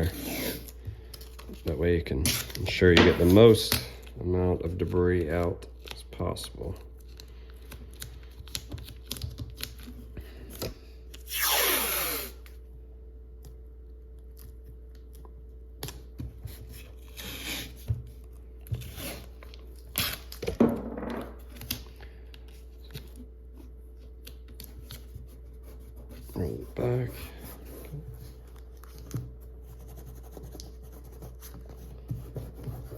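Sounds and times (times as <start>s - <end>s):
tape peeling off roll: 11.2s - 12.5s.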